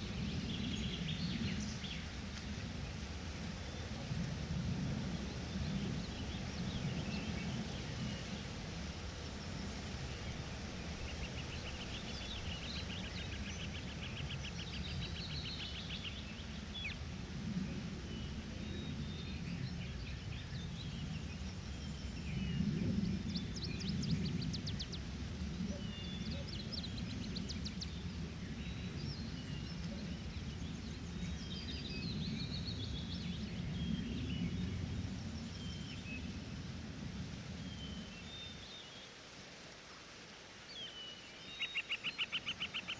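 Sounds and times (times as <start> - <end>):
birds chirping and singing: 40.8 - 42.9
rapid ticking bird calls: 41.4 - 42.9
bird trilling: 41.6 - 42.9.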